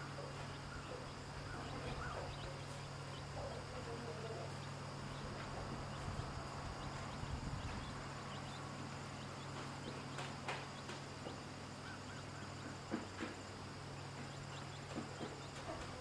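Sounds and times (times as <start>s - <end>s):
chicks peeping: 0.0s - 16.0s
low steady hum: 0.0s - 16.0s
hen clucking softly: 0.1s - 8.6s.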